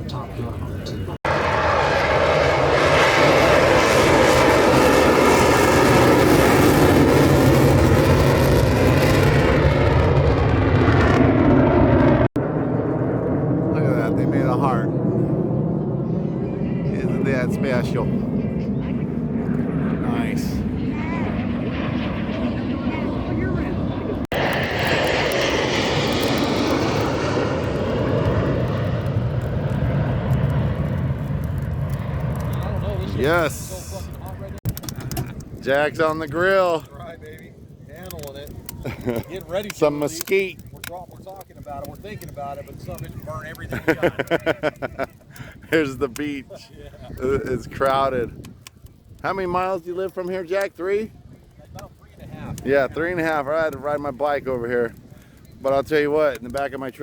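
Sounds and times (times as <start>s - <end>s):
aircraft engine flying past: 0.0s - 34.6s.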